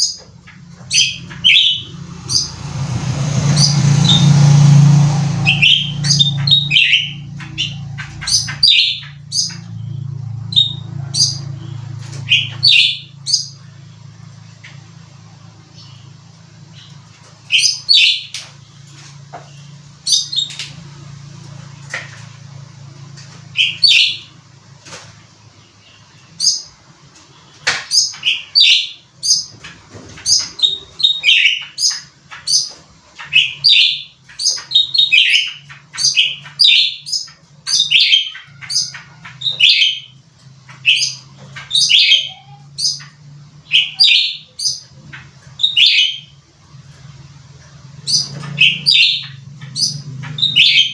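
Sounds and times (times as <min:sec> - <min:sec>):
steady low hum: 0:00.0 - 0:27.7
songbird sharp high chirps: 0:05.4 - 0:13.7.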